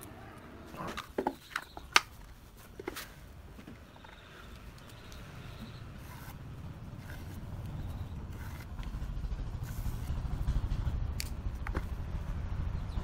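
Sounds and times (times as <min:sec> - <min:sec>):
low background rumble: 0:03.2 - 0:13.0
marker pen clicking on concrete: 0:04.5 - 0:06.4.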